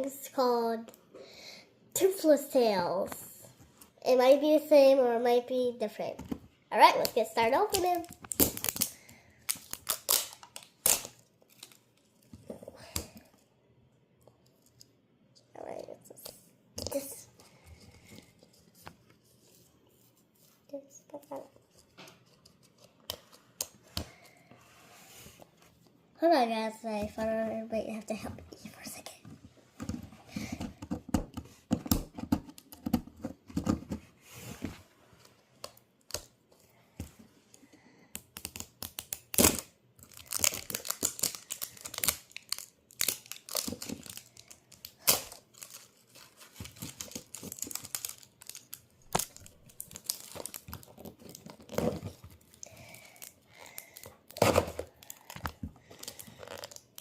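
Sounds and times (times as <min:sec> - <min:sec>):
plastic packaging tearing and crinkling: 0:07.0 - 0:12.2, 0:38.3 - 0:57.0.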